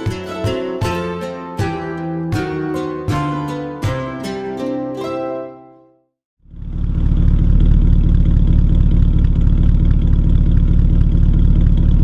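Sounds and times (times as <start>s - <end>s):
car engine running: 6.4s - 12.0s.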